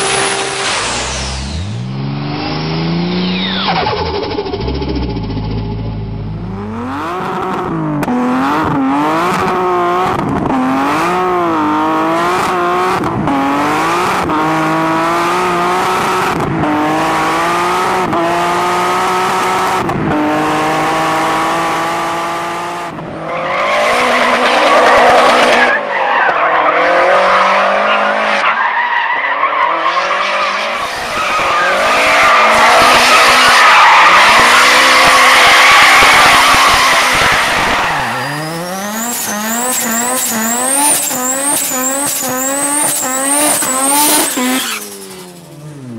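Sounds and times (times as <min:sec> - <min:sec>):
screeching noise: 0:00.0 - 0:06.1, 0:30.4 - 0:45.3
turbocharged car engine revving: 0:00.0 - 0:28.5, 0:29.6 - 0:45.9.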